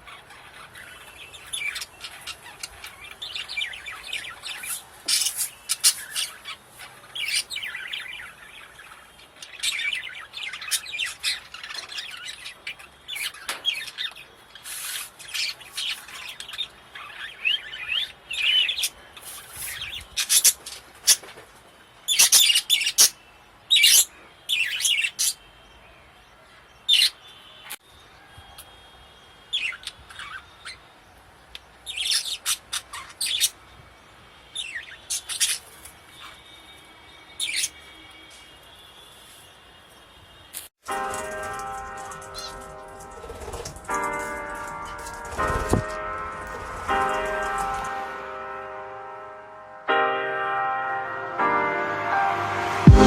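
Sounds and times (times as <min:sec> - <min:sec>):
budgerigars chirping: 0:00.0 - 0:21.3, 0:22.1 - 0:23.2, 0:29.5 - 0:30.8, 0:31.9 - 0:33.6, 0:34.6 - 0:36.6.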